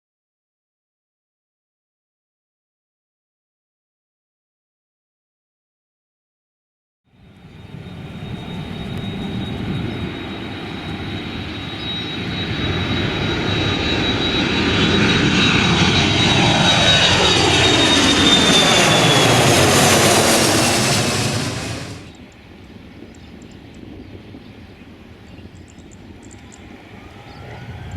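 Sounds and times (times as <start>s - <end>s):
jet airliner passing: 7.1s - 27.9s.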